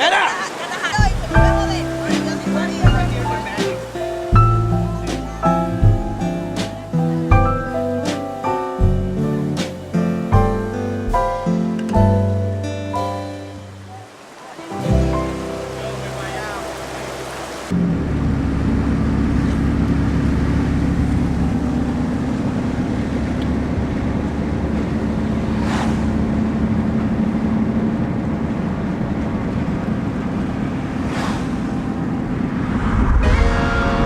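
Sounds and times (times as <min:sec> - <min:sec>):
motor rumbling: 0:16.7 - 0:34.0.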